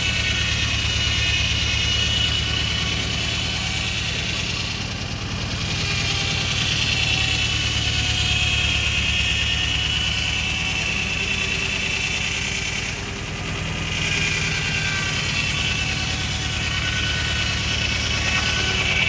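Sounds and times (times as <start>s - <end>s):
engine running with firing pulses: 0.0s - 19.0s
high engine whine: 0.0s - 19.0s.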